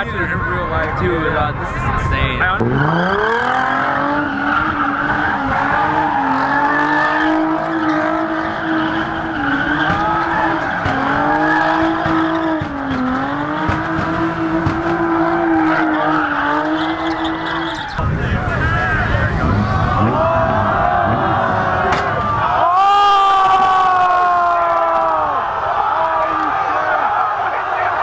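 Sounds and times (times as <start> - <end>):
car engine revving hard: 2.5 - 17.8, 19.0 - 22.5
tyres squealing: 2.6 - 18.0.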